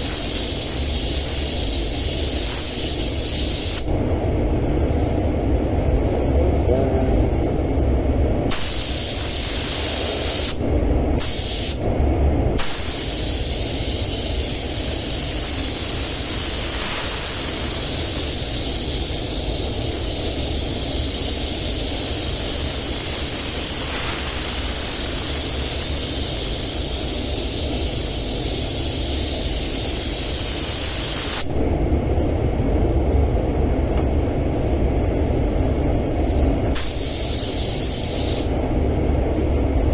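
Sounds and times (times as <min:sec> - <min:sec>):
paint spray gun hissing: 0:00.0 - 0:03.9, 0:08.5 - 0:10.6, 0:11.2 - 0:11.8, 0:12.6 - 0:31.5, 0:36.8 - 0:38.5
steady low rumble: 0:00.0 - 0:39.9.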